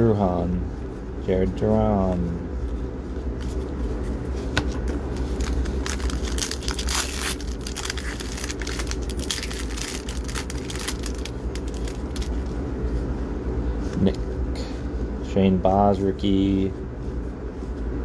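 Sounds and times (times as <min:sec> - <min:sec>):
steady low hum: 0:00.0 - 0:18.0
wrapper crinkling and tearing: 0:04.7 - 0:12.6.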